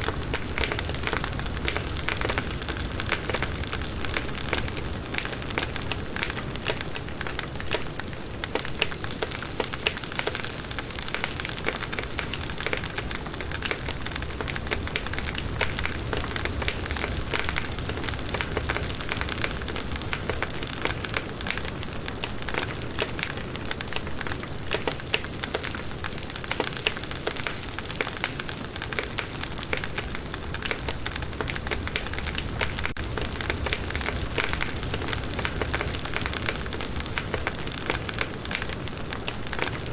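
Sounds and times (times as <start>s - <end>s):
campfire crackling and popping: 0.0s - 39.9s
low rumble of flames: 0.0s - 39.9s.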